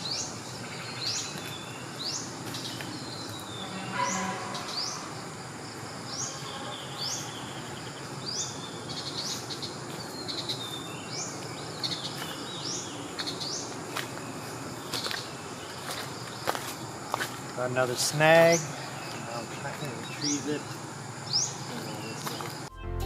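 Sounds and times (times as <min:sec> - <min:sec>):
bird calls sweeping upward: 0:00.0 - 0:05.3
high insect buzz: 0:00.0 - 0:22.7
outdoor background noise: 0:00.0 - 0:22.7.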